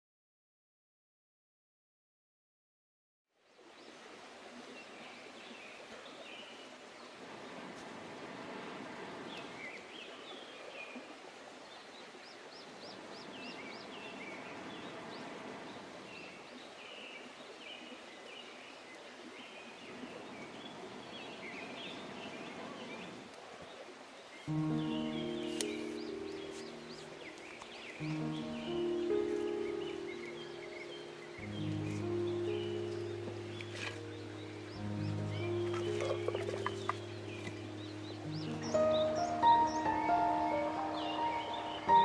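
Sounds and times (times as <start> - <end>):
small birds chirping: 8.8 - 42.0.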